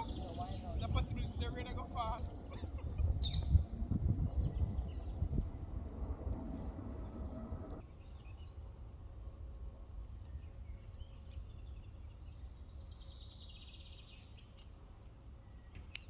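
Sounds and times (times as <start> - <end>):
low rumble: 0.0 - 7.8
songbirds chirping: 0.0 - 16.0.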